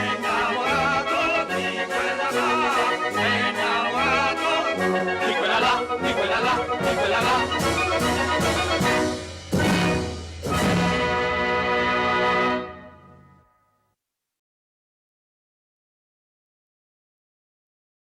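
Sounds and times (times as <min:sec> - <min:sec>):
instrumental music with beat: 0:01.5 - 0:11.9.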